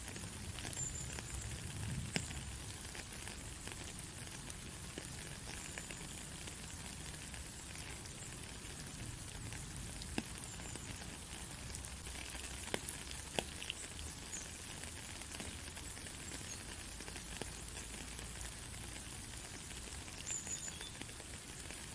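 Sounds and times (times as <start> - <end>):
rain falling on a road: 0.0 - 21.9.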